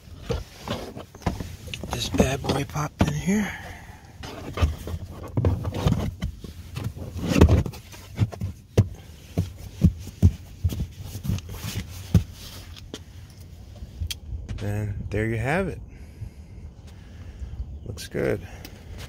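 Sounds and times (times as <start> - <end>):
rubber floor mat thumps and rubbing: 4.4 - 12.6.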